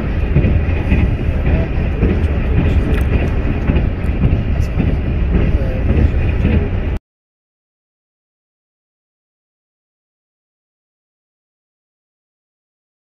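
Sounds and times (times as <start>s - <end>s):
train carriage rumble: 0.0s - 7.0s.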